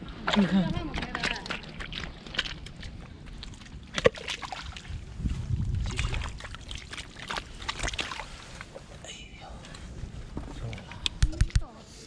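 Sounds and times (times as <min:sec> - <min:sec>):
low rumble: 0:04.6 - 0:06.7.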